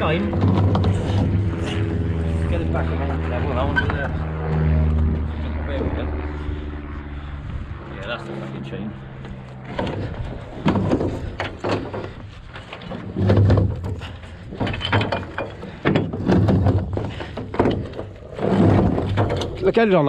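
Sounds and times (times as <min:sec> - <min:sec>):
chain links clanking: 0:12.8 - 0:17.9.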